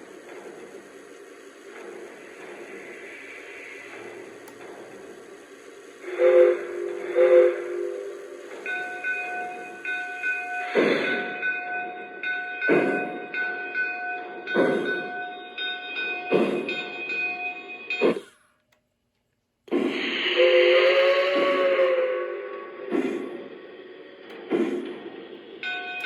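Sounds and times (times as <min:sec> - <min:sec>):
steam locomotive exhaust chuffs: 0:00.0 - 0:18.7, 0:19.5 - 0:26.0
model train whistle toots: 0:06.0 - 0:11.0, 0:20.0 - 0:23.2
steady ringing tone: 0:07.9 - 0:18.3, 0:25.3 - 0:26.0.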